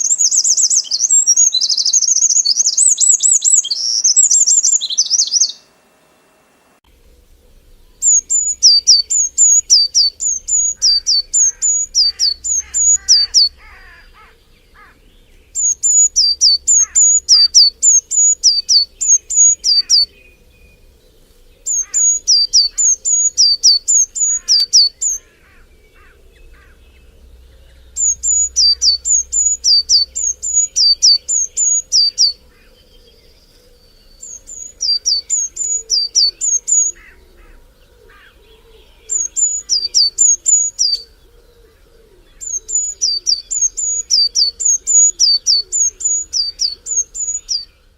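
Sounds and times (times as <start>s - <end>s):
bird singing high down-slurred notes: 0.0s - 5.7s, 8.0s - 20.9s, 21.6s - 37.6s
faint bird chirps: 0.0s - 5.7s, 7.0s - 47.9s.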